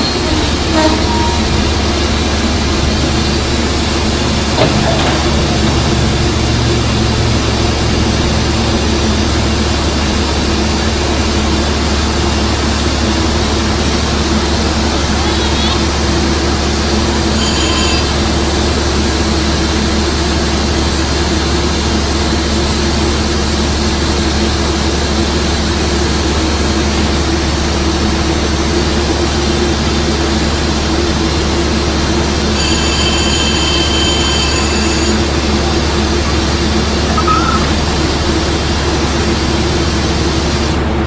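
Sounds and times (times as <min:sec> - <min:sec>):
high-pitched squeal: 0:00.0 - 0:10.8, 0:14.6 - 0:18.6, 0:37.0 - 0:38.3
diesel train droning: 0:00.0 - 0:41.0.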